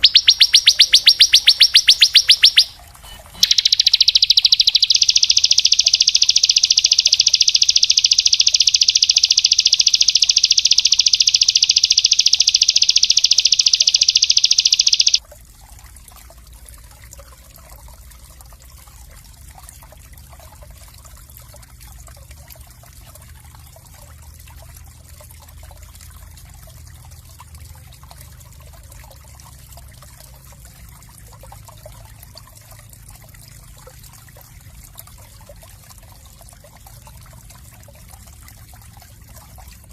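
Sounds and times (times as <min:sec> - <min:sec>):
songbird high trill: 0:00.0 - 0:15.2
faint trickle of water: 0:00.0 - 0:39.9.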